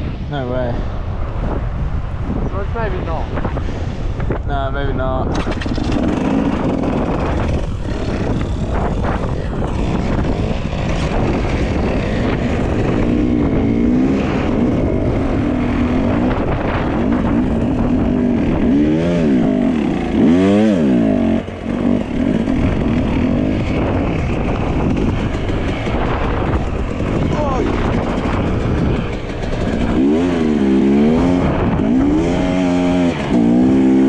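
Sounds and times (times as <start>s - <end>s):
heavy rushing noise: 0.0s - 34.0s
dirt bike engine revving: 5.2s - 34.0s.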